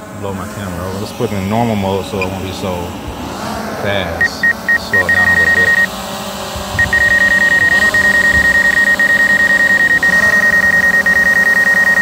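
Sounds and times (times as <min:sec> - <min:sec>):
fainter lower tone: 0:04.2 - 0:05.9, 0:06.8 - 0:12.0
high-pitched electronic warning beep: 0:04.2 - 0:05.9, 0:06.8 - 0:12.0.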